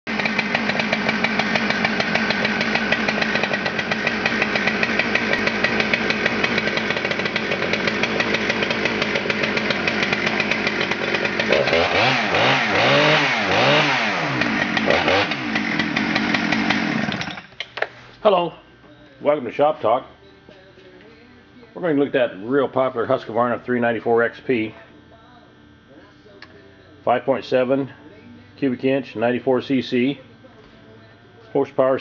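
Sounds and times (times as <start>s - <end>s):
chainsaw idling and revving: 0.1s - 17.5s.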